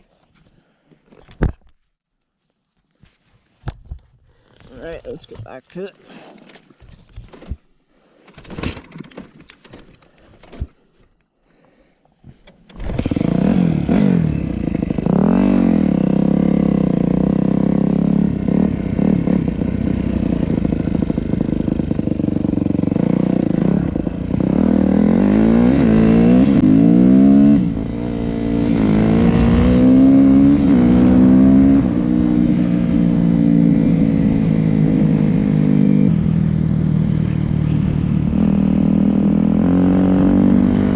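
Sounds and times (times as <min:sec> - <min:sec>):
motorcycle engine revving: 0:12.8 - 0:40.9.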